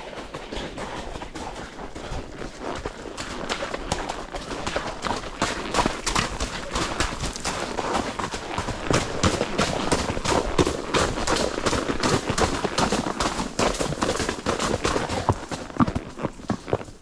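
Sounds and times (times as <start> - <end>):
horse hooves clip-clopping: 0.0 - 17.0.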